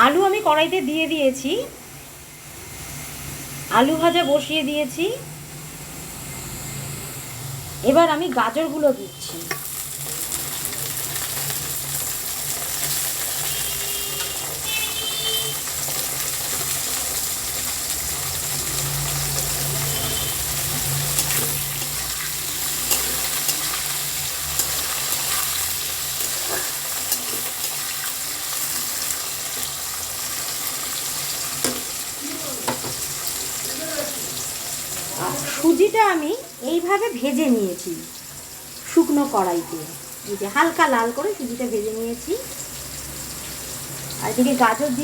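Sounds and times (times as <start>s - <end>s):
vegetables sizzling in oil: 0.0s - 45.0s
spatula clicking while stirring: 21.1s - 25.5s.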